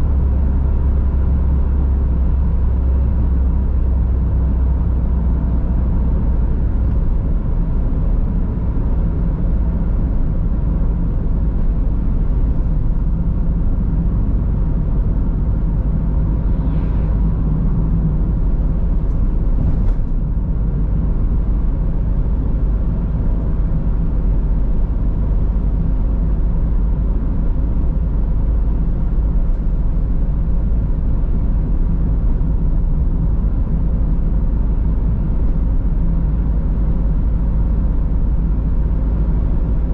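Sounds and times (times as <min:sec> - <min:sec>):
car engine: 0:00.0 - 0:39.9
tyres rumbling on road: 0:00.0 - 0:39.9.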